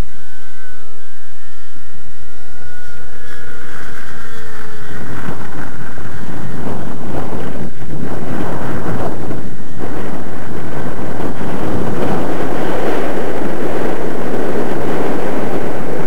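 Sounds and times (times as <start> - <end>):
model plane engine whine: 0.0 - 16.0
wind buffeting microphone: 0.0 - 16.0.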